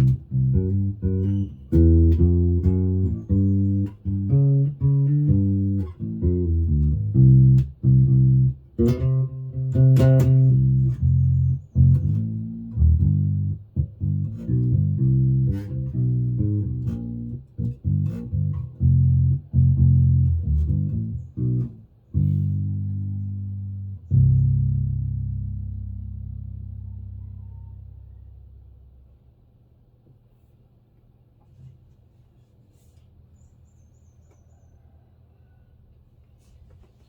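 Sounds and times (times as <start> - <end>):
electric bass plucked notes: 0.0 - 29.1.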